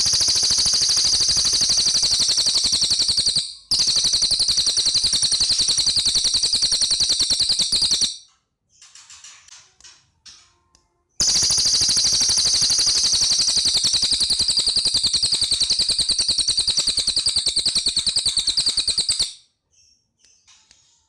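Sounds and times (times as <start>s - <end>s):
bird rattling trill: 0.0s - 8.2s, 11.2s - 19.4s
faint bird chirps: 0.0s - 21.0s.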